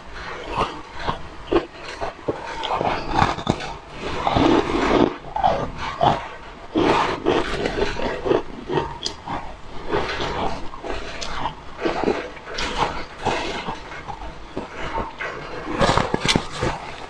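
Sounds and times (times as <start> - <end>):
food crunching while chewing: 0.2 - 17.0
wet mouth clicks: 8.9 - 9.2.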